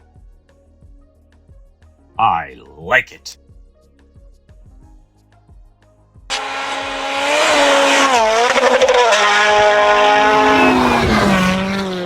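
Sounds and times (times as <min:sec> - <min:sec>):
racing car engine revving: 0:06.3 - 0:12.0.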